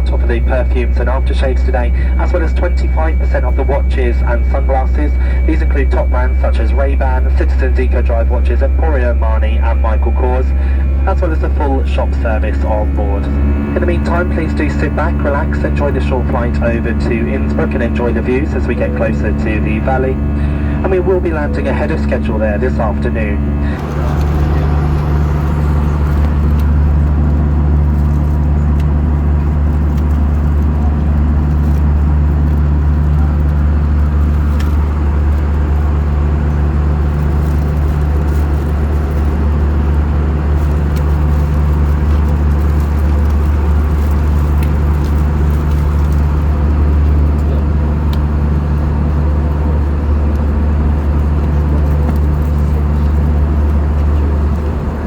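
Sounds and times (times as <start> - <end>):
airplane cabin engine drone: 0.0 - 55.0
air rushing along fuselage: 10.4 - 28.2.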